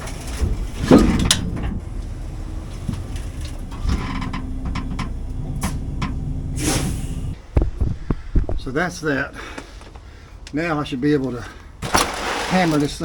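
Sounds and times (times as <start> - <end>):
metallic clunks and knocks: 0.0 - 6.6
truck engine running: 0.0 - 8.9.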